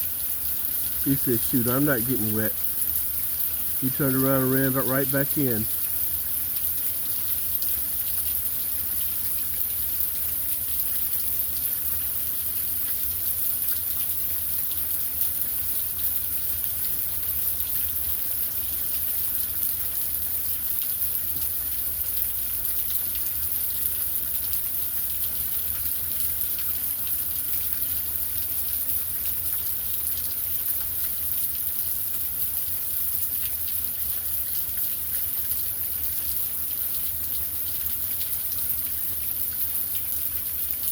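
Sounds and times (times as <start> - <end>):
heavy rain: 0.8 - 5.8.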